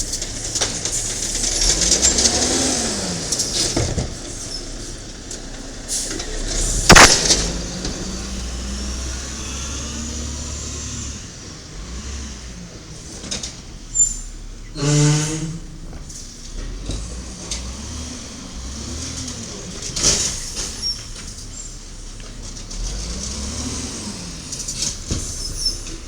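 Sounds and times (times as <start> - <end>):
garbage truck engine running: 0.0 - 26.0
loud bang: 6.9 - 7.8.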